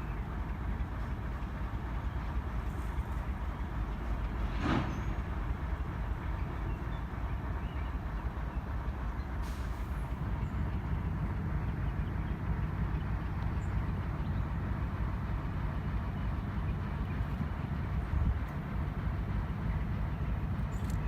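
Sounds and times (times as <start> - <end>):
diesel locomotive running: 0.0 - 21.0.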